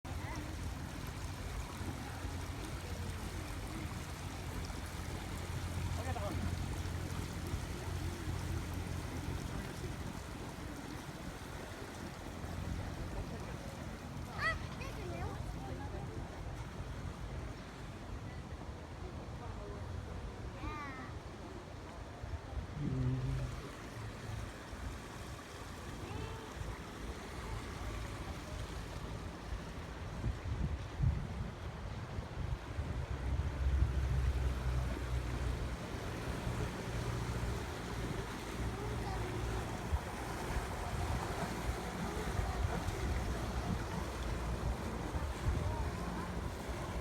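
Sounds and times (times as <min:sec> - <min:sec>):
low engine hum: 0:00.0 - 0:20.5, 0:21.1 - 0:47.0
faint outdoor background: 0:00.0 - 0:47.0
wash of noise: 0:00.0 - 0:47.0
wind buffeting microphone: 0:29.6 - 0:34.6, 0:35.4 - 0:47.0.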